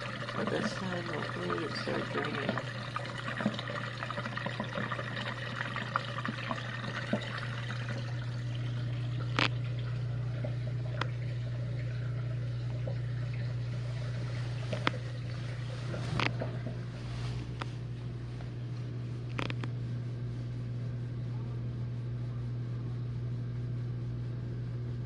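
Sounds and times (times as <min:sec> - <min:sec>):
water gurgling out: 0:00.0 - 0:17.0
drain pump humming: 0:00.0 - 0:25.0.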